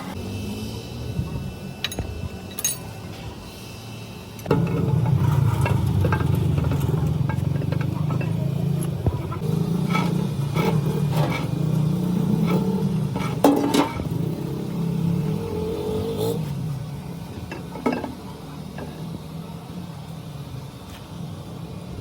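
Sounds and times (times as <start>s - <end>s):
metallic clanks and knocks: 4.4s - 11.6s, 13.1s - 14.1s, 17.4s - 19.0s.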